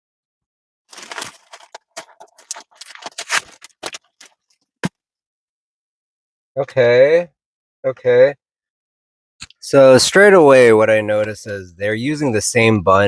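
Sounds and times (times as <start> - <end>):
paper wrapping crinkling: 0.9 - 4.4.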